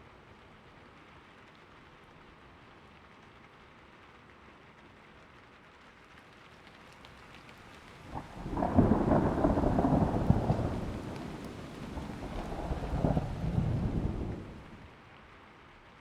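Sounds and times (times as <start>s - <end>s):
steady rain falling: 0.0s - 16.0s
thunder rolling: 8.1s - 14.8s.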